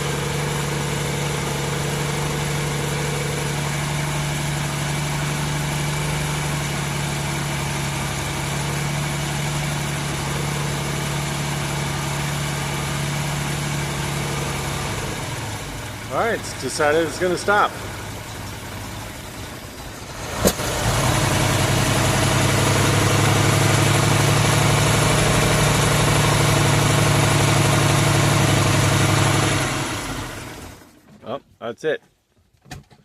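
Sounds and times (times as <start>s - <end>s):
boat engine idling: 0.0s - 20.2s.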